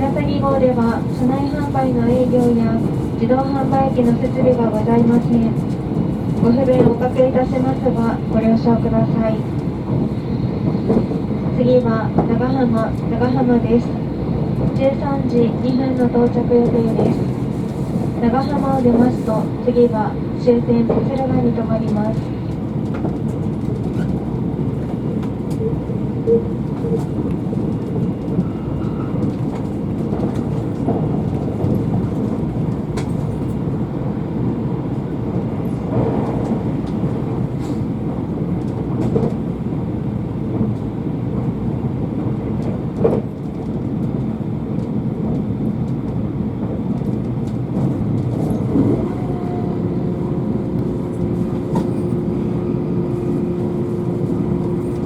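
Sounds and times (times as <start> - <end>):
train running rumble: 0.0 - 55.0
steady low hum: 48.6 - 55.0.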